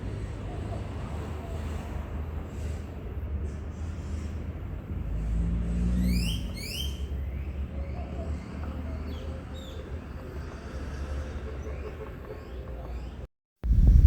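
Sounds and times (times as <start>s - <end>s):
bird calling: 6.1s - 13.2s
steady low rumble: 13.6s - 14.0s.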